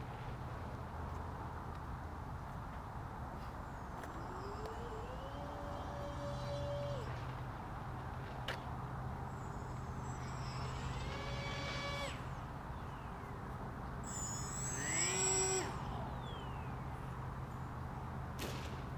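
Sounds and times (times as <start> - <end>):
motor passing by: 3.7 - 7.4, 9.3 - 13.1, 14.0 - 16.9
low hum: 14.0 - 17.7.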